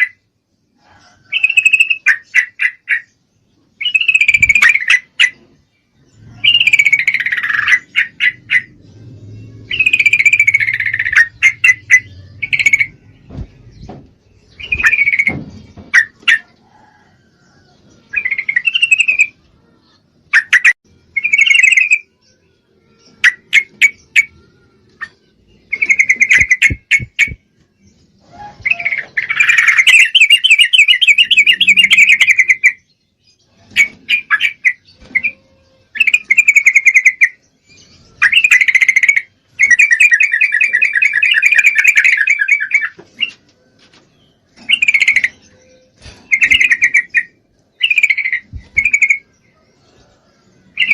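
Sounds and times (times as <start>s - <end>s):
bird chattering call: 9.6s - 13.0s, 28.5s - 32.7s.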